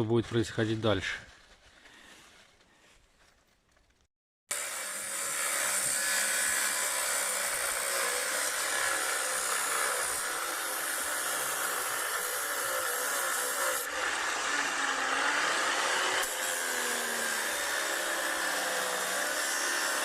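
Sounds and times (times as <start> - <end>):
power grinder cutting metal: 4.5 - 20.0.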